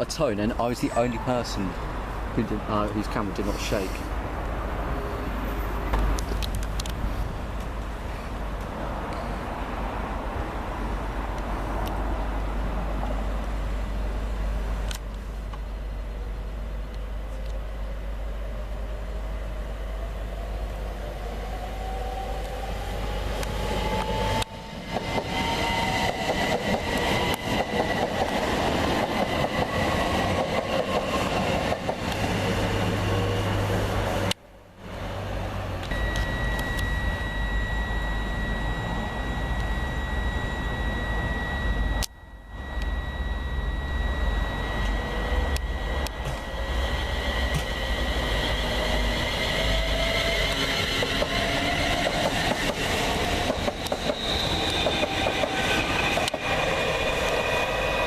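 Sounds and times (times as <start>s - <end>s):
train rumble: 0.0s - 37.3s, 43.4s - 58.0s
high-pitched tone: 0.6s - 1.6s, 35.9s - 49.5s
electric train whine: 8.8s - 58.0s.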